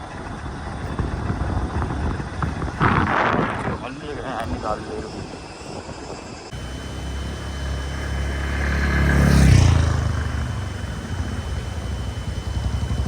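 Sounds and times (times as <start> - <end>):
motorcycle engine passing: 6.5 - 13.0.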